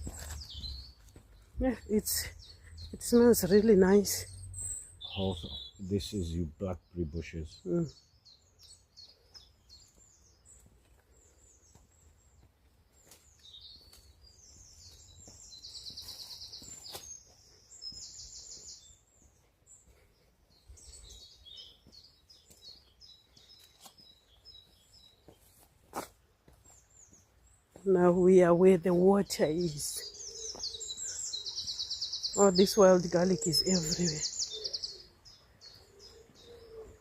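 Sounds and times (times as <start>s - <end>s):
songbirds chirping and singing: 0.0s - 37.0s
bird trill: 29.2s - 37.0s.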